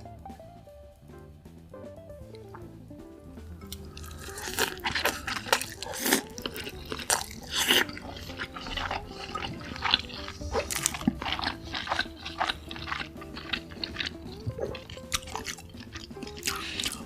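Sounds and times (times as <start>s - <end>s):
person chewing food: 3.5s - 17.0s.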